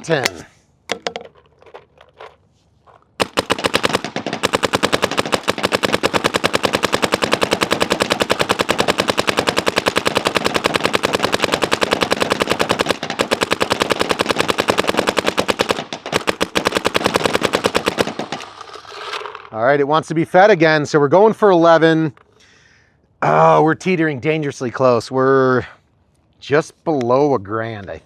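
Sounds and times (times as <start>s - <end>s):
paintball marker firing rapidly: 3.2s - 18.5s.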